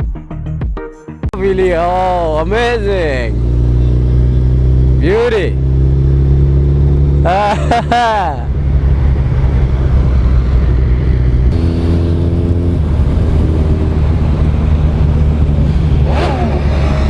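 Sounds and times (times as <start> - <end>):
higher steady engine note: 1.4 - 17.0
motorcycle engine running: 1.4 - 17.0
wind on microphone: 8.4 - 17.0.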